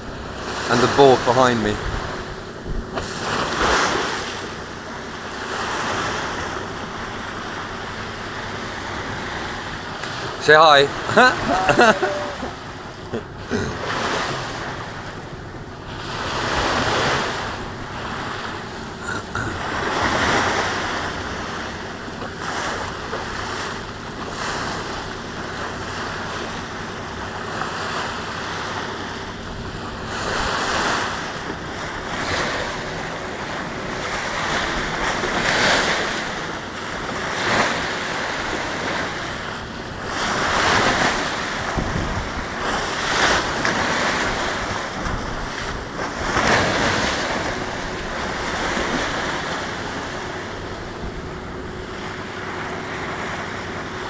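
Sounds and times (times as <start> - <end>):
water rushing past boat hull: 0.0 - 54.0
wind buffeting microphone: 40.0 - 46.9.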